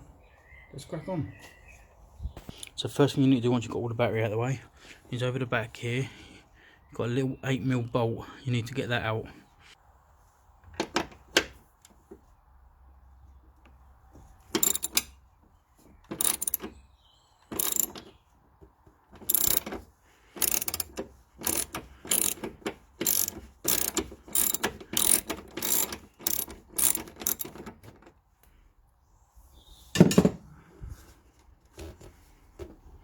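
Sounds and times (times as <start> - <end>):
socket ratchet clicking: 14.6 - 15.2, 16.1 - 16.7, 17.5 - 18.1, 19.2 - 19.8, 20.4 - 27.8.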